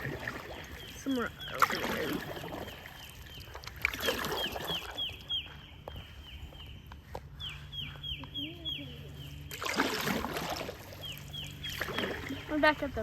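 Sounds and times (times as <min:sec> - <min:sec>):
water sounds: 0:00.0 - 0:05.4, 0:09.3 - 0:13.0.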